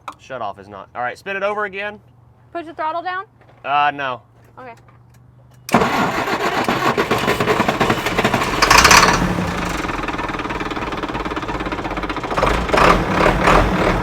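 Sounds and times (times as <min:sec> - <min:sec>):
truck engine cranking on starter: 0:05.7 - 0:14.0.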